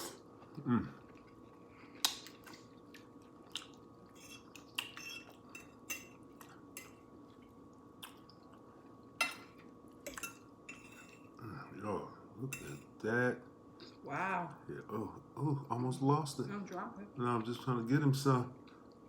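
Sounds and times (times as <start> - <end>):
faint steady hum: 0.0 - 19.0
chewing and mouth sounds: 0.4 - 10.2.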